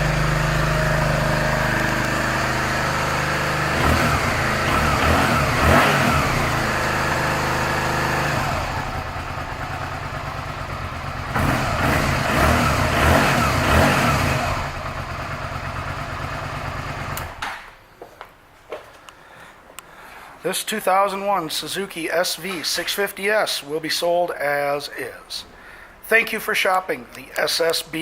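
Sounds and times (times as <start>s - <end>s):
motorcycle engine idling: 0.0s - 17.4s.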